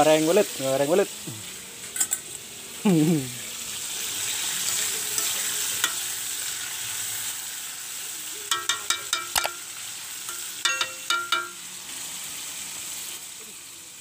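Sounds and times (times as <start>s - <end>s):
fish sizzling in oil: 0.0s - 14.0s
spatula clinking against wok: 5.1s - 6.1s, 8.5s - 9.7s, 10.3s - 11.7s.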